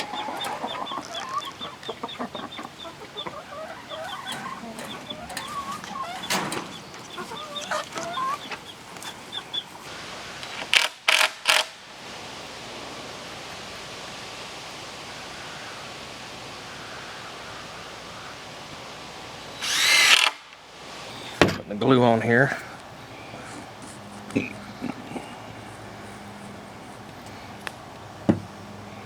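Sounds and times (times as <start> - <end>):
hens clucking and cackling: 0.0 - 11.2
steady hiss: 0.0 - 29.0.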